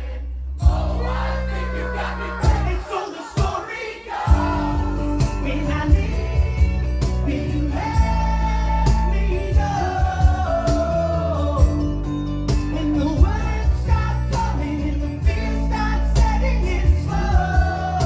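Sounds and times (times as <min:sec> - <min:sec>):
person singing: 0:00.6 - 0:11.9
acoustic rock band playing: 0:00.6 - 0:18.0.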